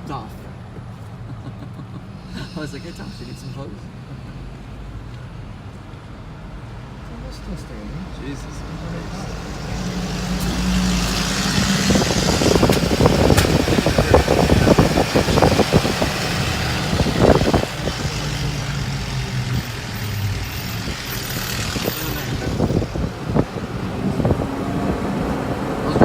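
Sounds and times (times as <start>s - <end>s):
car engine humming: 0.0s - 26.0s
road and wind noise: 0.0s - 26.0s
knocks and rattles: 11.5s - 18.1s.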